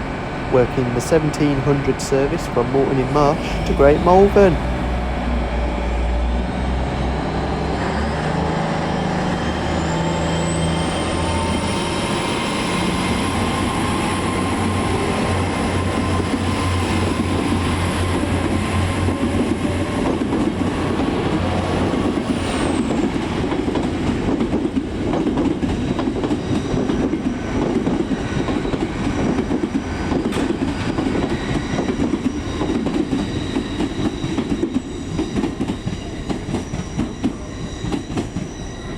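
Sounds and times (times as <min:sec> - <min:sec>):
train engines revving: 0:00.0 - 0:38.9.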